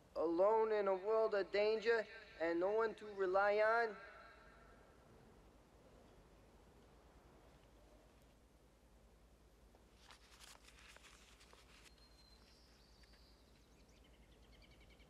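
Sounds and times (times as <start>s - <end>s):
faint rustle: 9.5s - 14.6s
faint high bird chirps: 11.9s - 15.0s.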